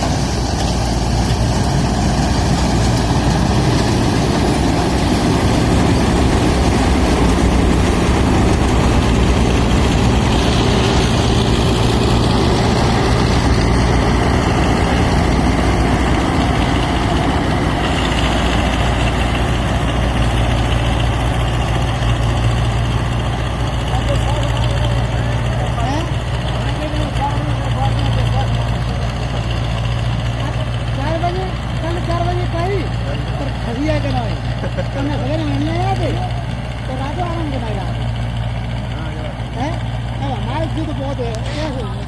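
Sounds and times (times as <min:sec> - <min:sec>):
reaper machinery noise: 0:00.0 - 0:42.0
tractor diesel engine humming: 0:00.0 - 0:42.0.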